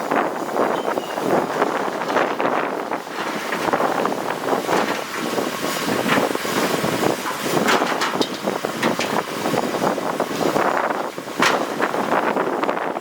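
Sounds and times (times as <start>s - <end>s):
heavy machinery engine: 0.0s - 13.0s
clattering and crunching: 1.3s - 9.4s, 10.4s - 12.1s.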